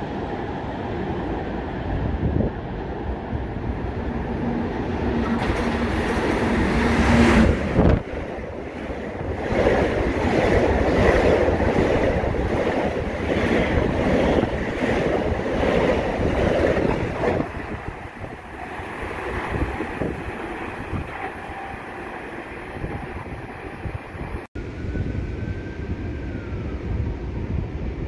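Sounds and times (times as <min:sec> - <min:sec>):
train passing at speed: 0:00.0 - 0:28.0.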